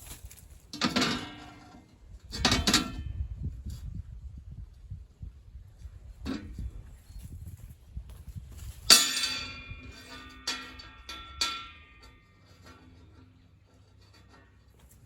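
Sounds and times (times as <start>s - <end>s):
light metal clanks: 0.0s - 4.0s, 5.8s - 7.6s, 8.5s - 15.0s
loud ringing metal clang: 8.9s - 12.4s.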